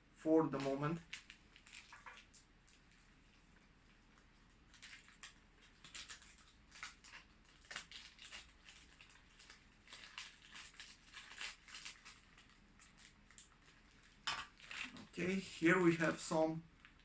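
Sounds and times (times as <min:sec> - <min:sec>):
plastic packaging rustling: 0:00.6 - 0:03.1, 0:04.6 - 0:17.0.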